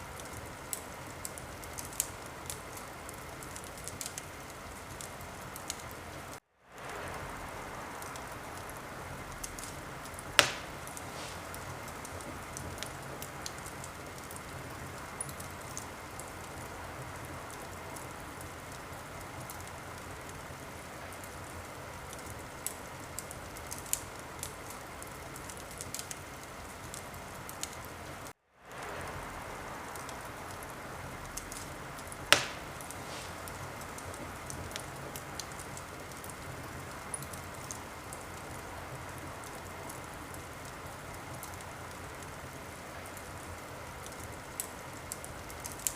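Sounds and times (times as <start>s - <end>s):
wood fire crackling: 0.0s - 45.9s
loud pops from fire: 8.0s - 16.7s, 29.9s - 38.6s.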